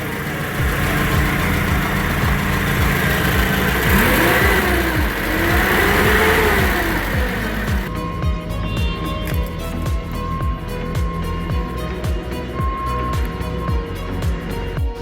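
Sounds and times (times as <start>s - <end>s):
forklift engine revving: 0.0s - 8.2s.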